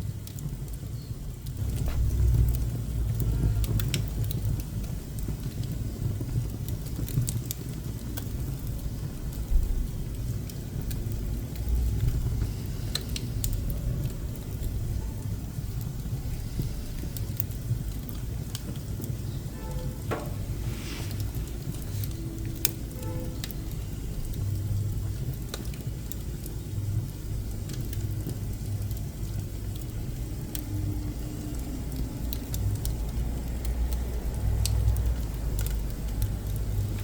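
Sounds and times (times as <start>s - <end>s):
low rumble of fire: 0.0s - 37.0s
wood crackling and popping: 0.0s - 37.0s
brief hiss: 20.1s - 21.5s.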